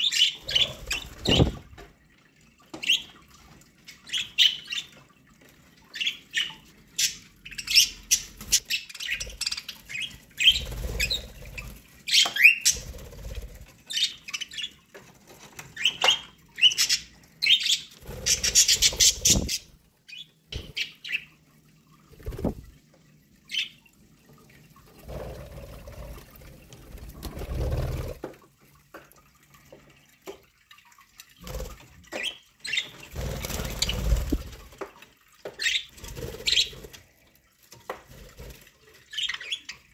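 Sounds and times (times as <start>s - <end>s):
budgerigars chirping and squawking: 0.0s - 1.6s, 5.9s - 12.9s, 15.8s - 21.3s, 35.6s - 36.7s.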